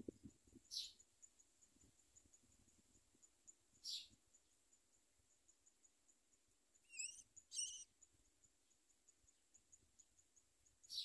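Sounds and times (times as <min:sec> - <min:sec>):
high bird chirps: 0:06.8 - 0:07.9.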